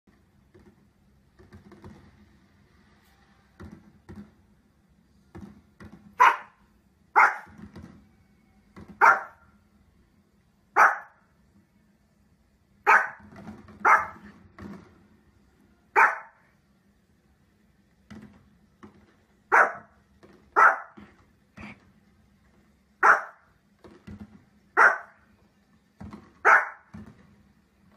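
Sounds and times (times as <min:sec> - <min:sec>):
dog barking: 0:06.2 - 0:07.6, 0:09.0 - 0:09.5, 0:10.7 - 0:11.2, 0:12.8 - 0:14.3, 0:15.9 - 0:16.5, 0:19.5 - 0:21.1, 0:23.0 - 0:23.5, 0:24.8 - 0:25.2, 0:26.4 - 0:26.9.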